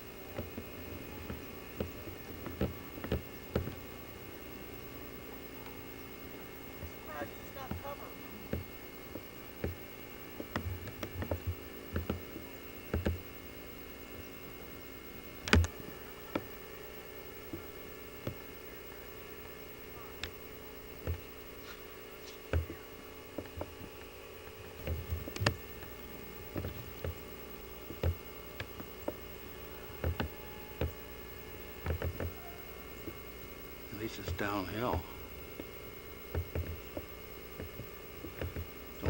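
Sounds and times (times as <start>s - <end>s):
steady tonal hum: 0.0s - 39.0s
short knocks and clicks: 22.2s - 31.0s, 31.8s - 32.4s, 36.3s - 39.0s.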